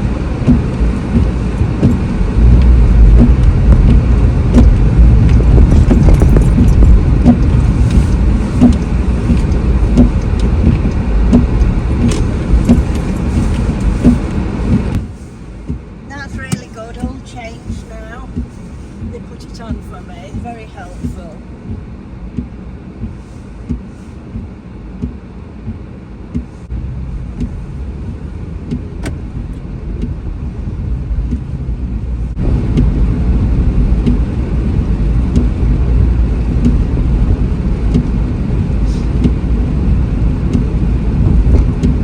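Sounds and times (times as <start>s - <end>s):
car engine and road noise: 0.0s - 42.0s
regular ticking: 0.4s - 30.5s.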